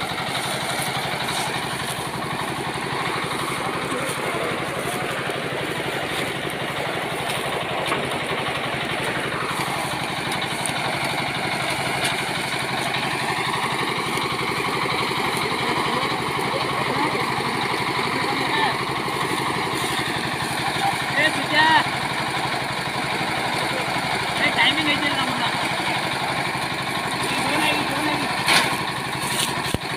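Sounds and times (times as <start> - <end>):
tractor engine running: 0.0 - 29.9.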